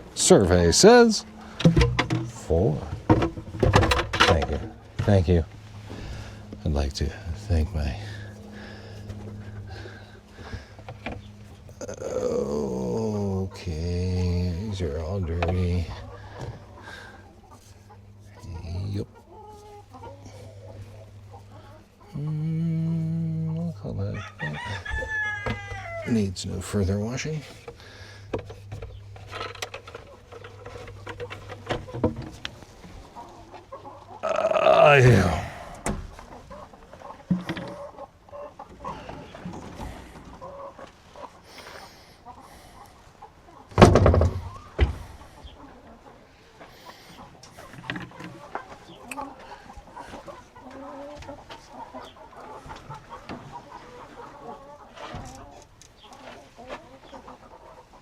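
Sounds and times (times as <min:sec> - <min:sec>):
steady low hum: 0:00.0 - 0:24.1
hens clucking: 0:00.0 - 0:58.0.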